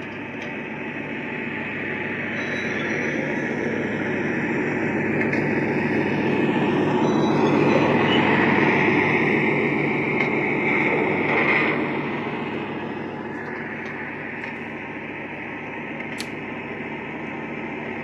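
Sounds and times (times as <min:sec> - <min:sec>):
model locomotive diesel drone: 0:00.0 - 0:18.0
high squeal: 0:02.2 - 0:04.8, 0:05.5 - 0:11.9.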